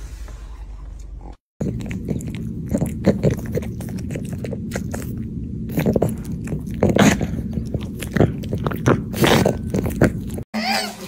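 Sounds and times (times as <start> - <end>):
puppy chewing a treat: 1.6 - 10.4.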